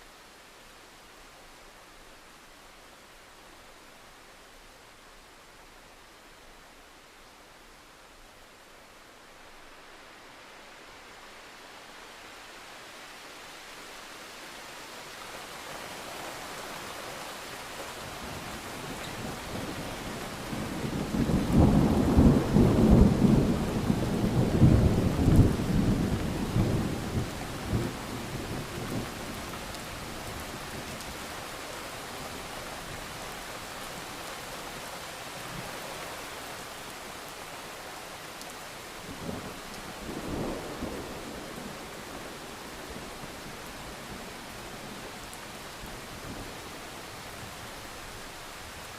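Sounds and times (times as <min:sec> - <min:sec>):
steady rain: 0:00.0 - 0:48.9
thunder rumbling: 0:20.4 - 0:29.2.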